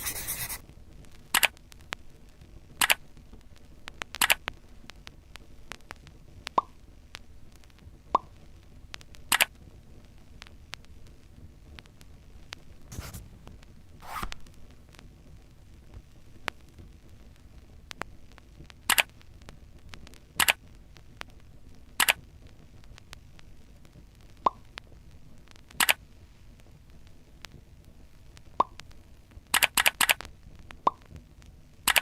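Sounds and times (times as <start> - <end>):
faint steady hiss: 0.0 - 32.0
short sharp clicks: 2.8 - 3.0, 9.3 - 9.5, 18.9 - 19.1, 20.4 - 20.6, 22.0 - 22.2, 25.8 - 26.0.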